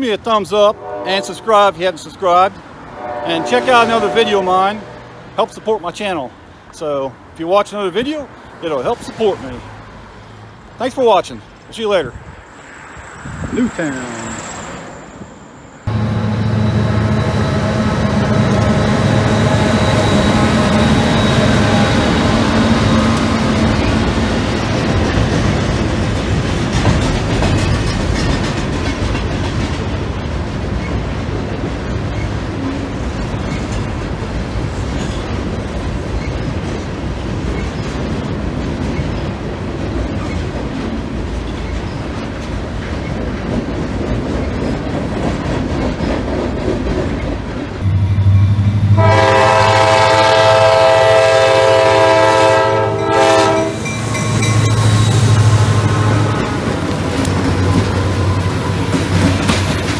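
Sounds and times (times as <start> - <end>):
diesel locomotive engine: 0.0 - 59.9
freight train rumbling over bridge: 0.0 - 59.9
train air horn blast: 0.7 - 1.7, 2.9 - 5.2, 47.8 - 53.9.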